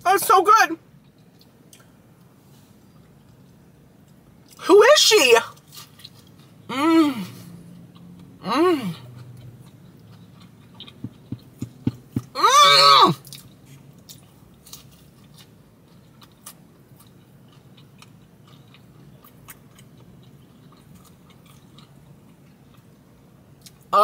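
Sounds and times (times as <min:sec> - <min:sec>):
chewing with mouth clicks: 0:01.0 - 0:01.9, 0:05.6 - 0:06.6, 0:07.5 - 0:12.4, 0:13.2 - 0:23.0.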